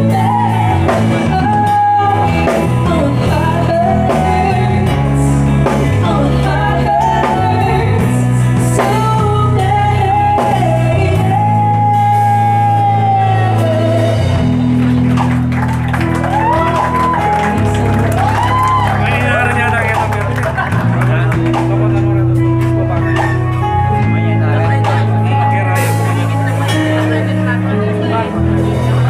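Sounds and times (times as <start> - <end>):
person singing lead vocals: 0.0 - 14.6
bass guitar: 0.0 - 29.0
electric guitar: 0.0 - 29.0.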